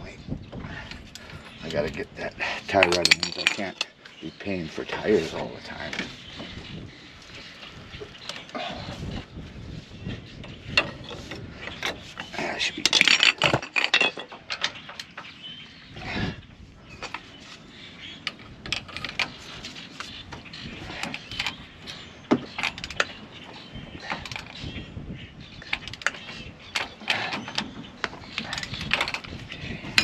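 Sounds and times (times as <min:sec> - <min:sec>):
metal clanks of hand tools: 0:02.6 - 0:04.0, 0:10.8 - 0:15.2.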